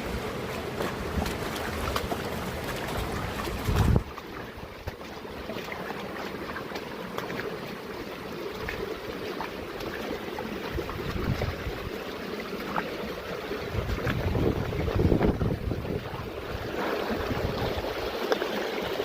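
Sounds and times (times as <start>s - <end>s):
mountain stream rushing: 0.0s - 19.0s
wind buffeting microphone: 3.0s - 4.2s, 10.7s - 12.0s, 13.6s - 18.2s.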